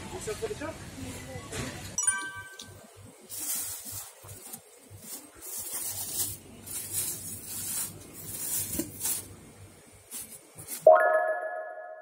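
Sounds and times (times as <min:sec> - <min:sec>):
plastic bags rustling: 0:02.3 - 0:10.9.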